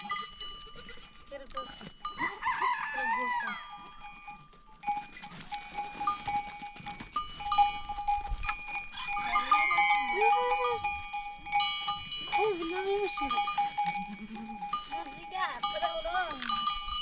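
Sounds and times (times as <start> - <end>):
goat or sheep bleating: 0.0 - 3.6, 8.9 - 10.9
animal bells ringing: 0.0 - 17.0.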